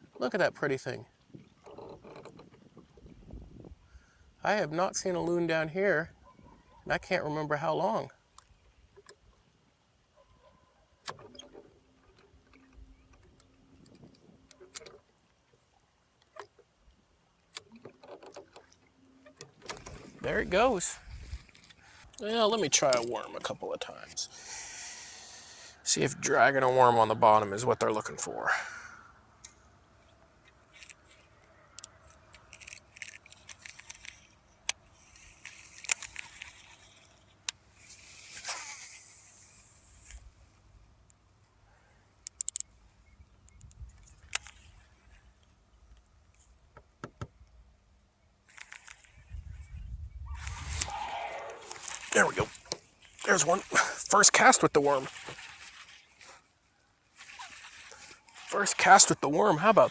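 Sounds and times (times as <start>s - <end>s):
fishing tackle clicks and scrapes: 1.4s - 3.0s, 11.0s - 15.4s, 17.4s - 28.2s, 29.4s - 41.2s, 42.1s - 46.9s, 48.4s - 59.9s
brief swish: 50.3s - 52.1s.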